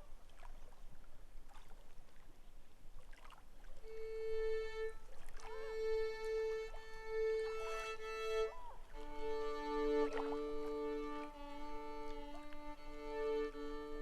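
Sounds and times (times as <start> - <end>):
faint water sounds: 0.0 - 14.0
violin holding long note: 3.8 - 14.0.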